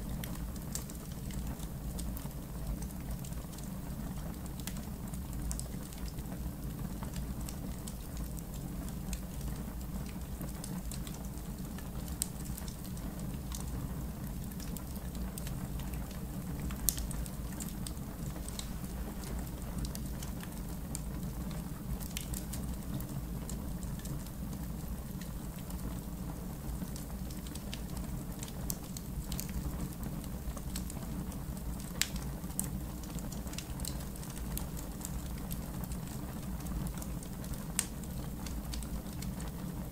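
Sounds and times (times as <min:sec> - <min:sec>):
low rumble of burning: 0:00.0 - 0:39.9
wood fire crackling: 0:00.0 - 0:39.9
fire pops and snaps: 0:14.5 - 0:23.1, 0:31.8 - 0:39.6.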